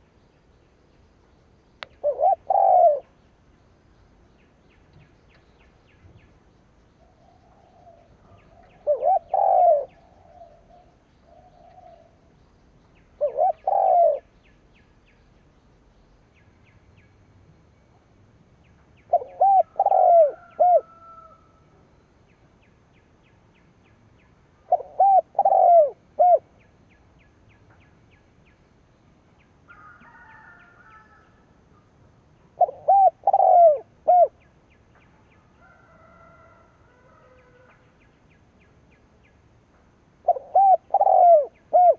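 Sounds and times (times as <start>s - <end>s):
dove cooing: 2.0s - 3.1s, 7.1s - 12.2s, 13.2s - 14.3s, 19.1s - 21.3s, 24.6s - 26.5s, 32.6s - 34.4s, 40.2s - 41.9s.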